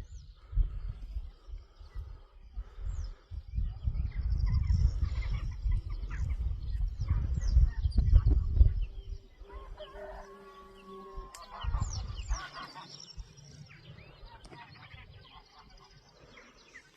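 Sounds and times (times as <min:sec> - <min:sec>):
small birds chirping: 0:00.0 - 0:16.9
rooster crowing: 0:09.4 - 0:11.5.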